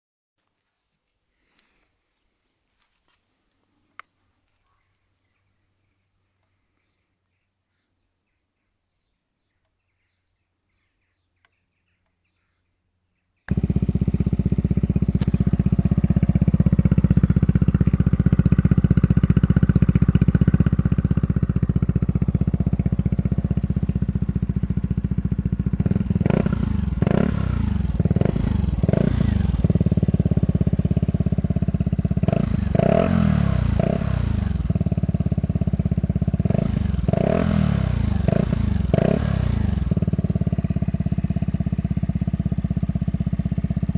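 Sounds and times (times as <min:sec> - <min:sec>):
scooter engine idling: 0:13.5 - 0:43.9
scooter engine revving: 0:13.5 - 0:43.9.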